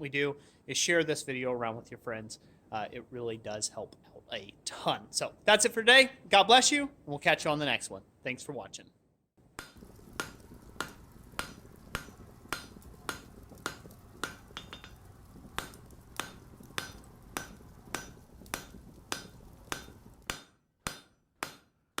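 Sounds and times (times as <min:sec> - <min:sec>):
hammer striking an anvil: 0:16.2 - 0:21.7.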